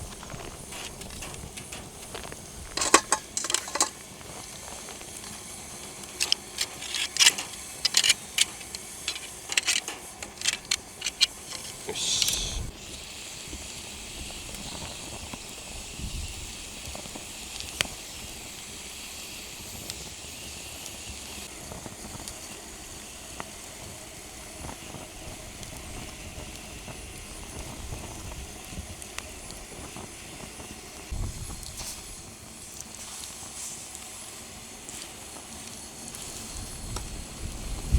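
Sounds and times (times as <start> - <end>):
fire crackling: 0.0 - 37.9
shellfish sizzling on a grill: 0.0 - 37.9.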